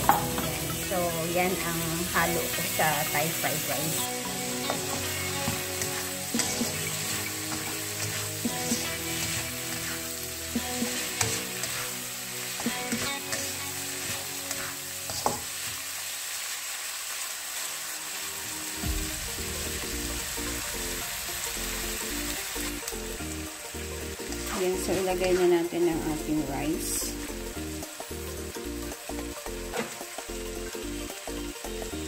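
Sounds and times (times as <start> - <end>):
spatula scraping wok: 0.0 - 15.9, 19.2 - 25.8
food sizzling in a wok: 0.0 - 32.0
background music with low beat: 3.9 - 11.6, 18.8 - 25.3.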